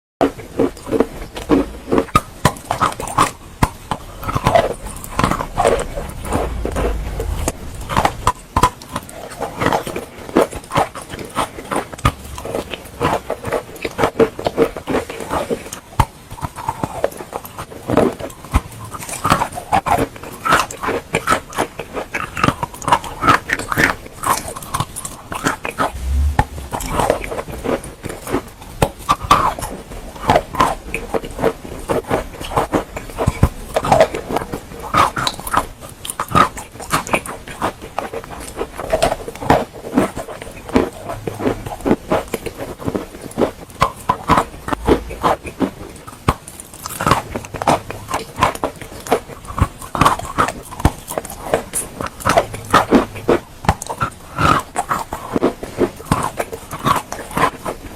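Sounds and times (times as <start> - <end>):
chewing wet chalk: 27.2 - 57.9.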